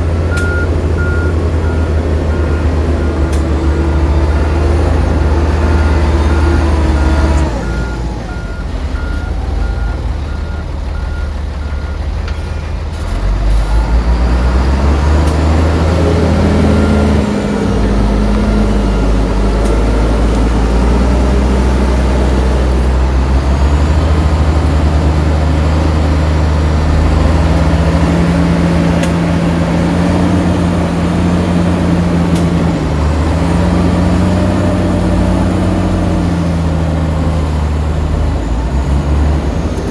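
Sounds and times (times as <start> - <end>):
heavy diesel machinery engines: 0.0 - 39.9
reversing alarm beeping: 0.3 - 12.1.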